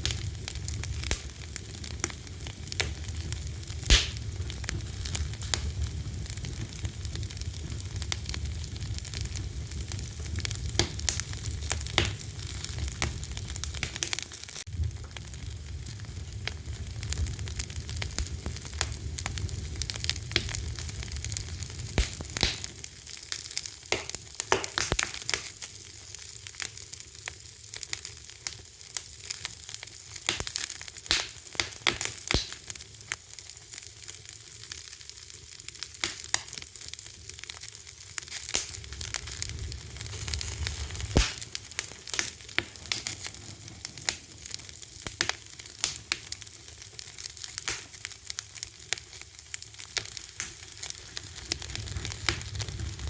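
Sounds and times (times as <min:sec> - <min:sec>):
fire crackling and popping: 0:00.0 - 0:53.0.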